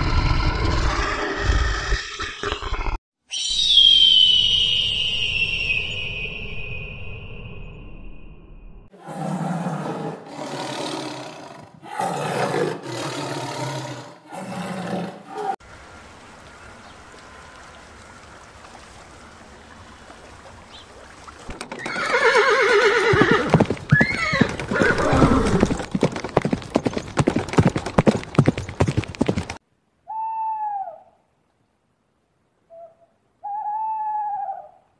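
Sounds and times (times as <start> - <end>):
horse neighing: 21.7 - 25.8
hoofbeats: 21.7 - 29.6
owl hooting: 30.1 - 31.2, 32.7 - 34.9.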